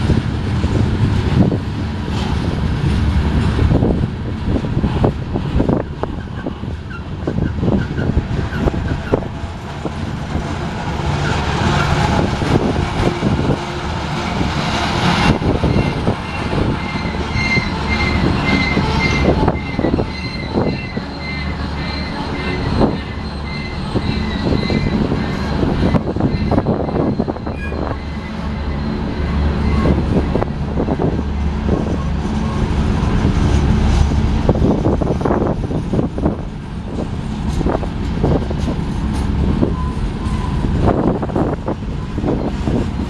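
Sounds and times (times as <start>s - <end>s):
train wheels clattering over rails: 0.0s - 43.0s
high-pitched wheel squeal: 6.1s - 13.1s, 14.0s - 30.4s, 39.6s - 43.0s.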